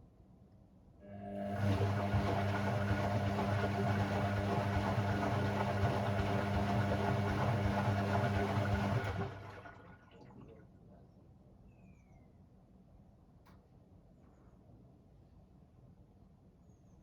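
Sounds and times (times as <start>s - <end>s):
washing machine filling with water: 1.2s - 10.6s.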